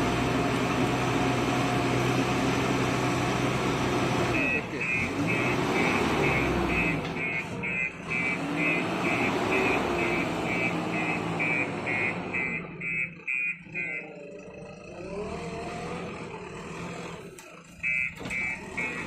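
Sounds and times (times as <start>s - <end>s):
diesel engine running: 0.0s - 19.0s
reverse alarm beeping: 4.4s - 14.4s, 17.8s - 19.0s.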